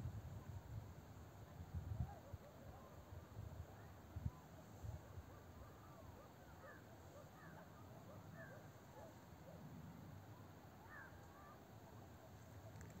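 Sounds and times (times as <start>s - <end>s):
faint bird chirps: 3.7s - 9.3s, 10.3s - 12.9s.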